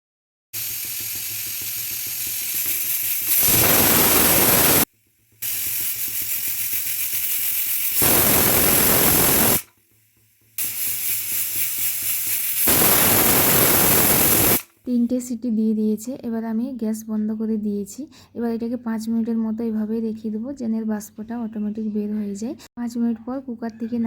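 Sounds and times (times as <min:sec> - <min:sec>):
pressure cooker whistling: 0:00.6 - 0:14.7.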